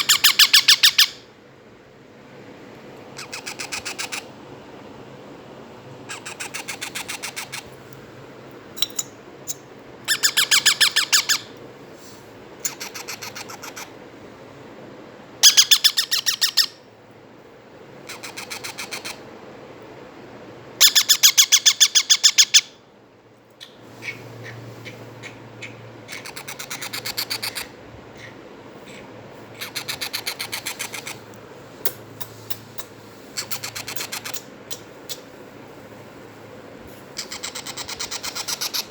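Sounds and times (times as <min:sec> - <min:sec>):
parakeet chicks chattering: 0:00.0 - 0:01.2, 0:03.2 - 0:04.3, 0:06.1 - 0:07.7, 0:08.8 - 0:11.5, 0:12.6 - 0:13.9, 0:15.4 - 0:16.8, 0:18.1 - 0:19.2, 0:20.8 - 0:22.7, 0:23.6 - 0:31.3, 0:31.9 - 0:35.3, 0:37.2 - 0:38.9.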